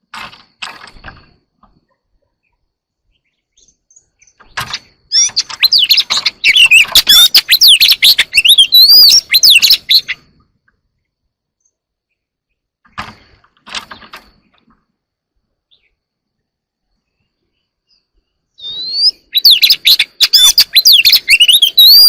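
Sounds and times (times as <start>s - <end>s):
songbird singing: 0.0s - 22.0s
sharp bird clicks: 3.6s - 10.8s, 18.6s - 22.0s.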